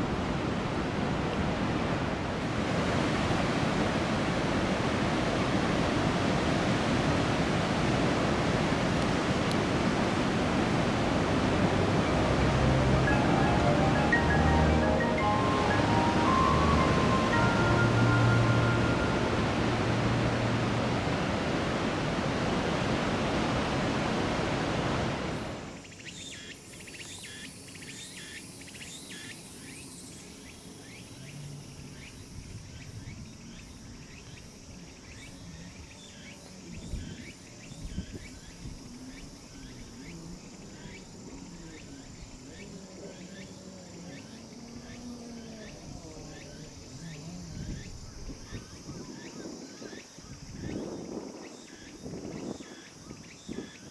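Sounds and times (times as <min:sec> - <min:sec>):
surf rushing: 0:00.0 - 0:25.7
cicadas chirping: 0:00.0 - 0:53.9.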